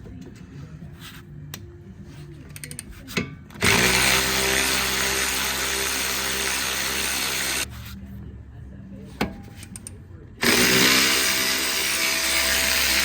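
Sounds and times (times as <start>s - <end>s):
power tool spinning socket: 3.5s - 7.7s, 9.7s - 13.0s.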